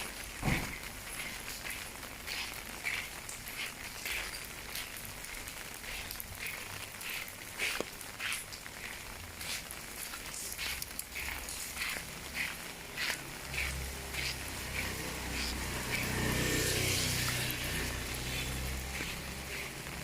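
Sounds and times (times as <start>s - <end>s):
footsteps on wet ground: 0.0s - 20.0s
steady rain: 0.0s - 20.0s
vehicle engine approaching: 10.6s - 20.0s.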